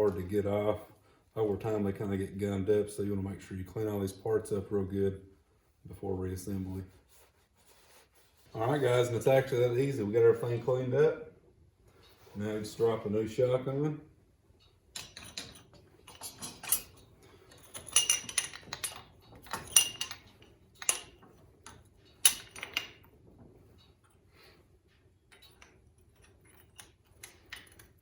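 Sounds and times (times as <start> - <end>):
metal parts clinking: 14.9 - 23.1, 25.3 - 28.0.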